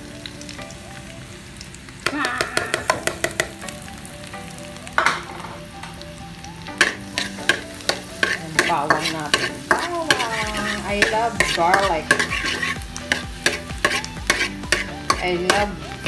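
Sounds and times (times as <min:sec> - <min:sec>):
garlic sizzling in oil: 0:00.0 - 0:16.0
spatula scraping a wok: 0:06.8 - 0:15.9.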